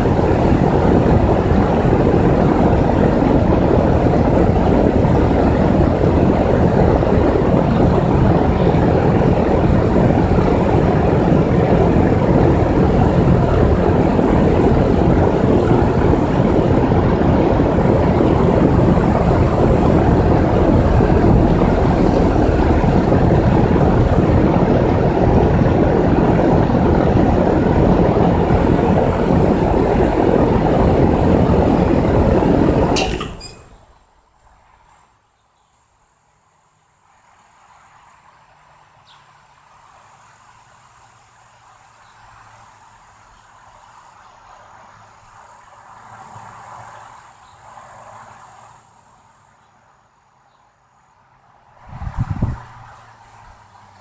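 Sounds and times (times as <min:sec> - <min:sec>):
air conditioner running: 0:00.0 - 0:34.5, 0:51.8 - 0:54.0.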